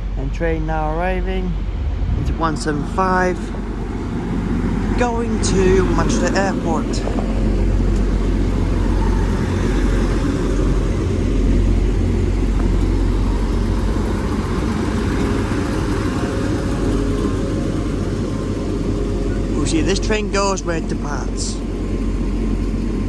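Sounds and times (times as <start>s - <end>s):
train diesel engines rumbling: 0.0s - 23.0s.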